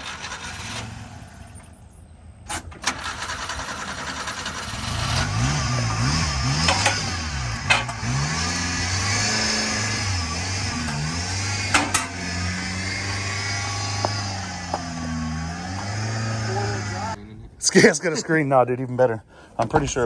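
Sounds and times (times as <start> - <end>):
small truck engine revving: 0.0 - 17.6.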